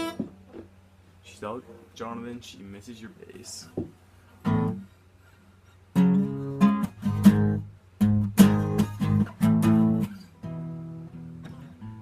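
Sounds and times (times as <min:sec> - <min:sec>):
acoustic guitar strumming chords: 0:00.0 - 0:00.5, 0:04.4 - 0:04.9, 0:05.9 - 0:12.0.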